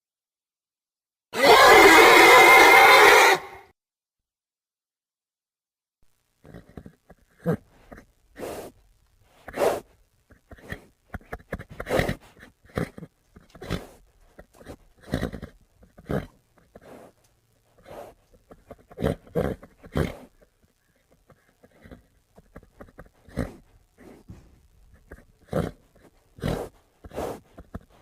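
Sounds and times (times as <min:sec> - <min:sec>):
horse snorting and grunting: 0:10.6 - 0:17.2, 0:17.8 - 0:20.4, 0:21.2 - 0:28.0.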